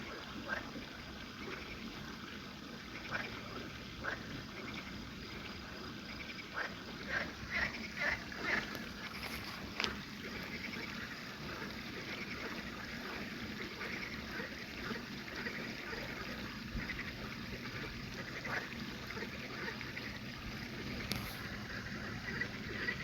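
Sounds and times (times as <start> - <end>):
frogs calling in chorus: 2.8 - 23.0.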